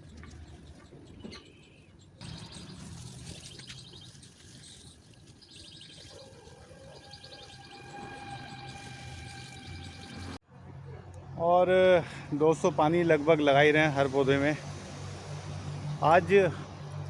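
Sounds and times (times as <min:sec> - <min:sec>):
small birds chirping: 0:00.0 - 0:10.4
steady held tone: 0:02.4 - 0:10.4.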